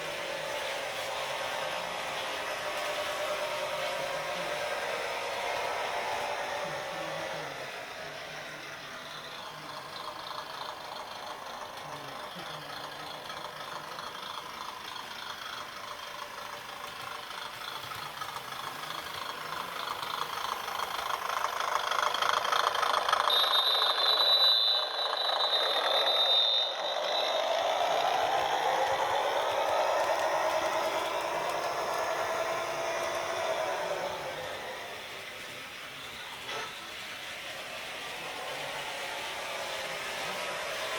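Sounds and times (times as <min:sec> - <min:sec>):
model train motor hum: 0:00.0 - 0:40.9
model train wheels rattling: 0:08.7 - 0:38.6
high steady whine: 0:22.2 - 0:40.9.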